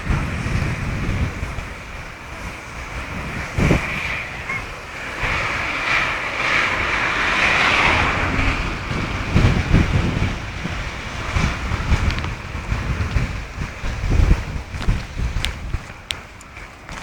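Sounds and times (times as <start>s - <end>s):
steady rushing hiss: 0.0s - 17.0s
wind gusting against microphone: 0.0s - 17.0s
low buffeting thumps: 6.8s - 17.0s.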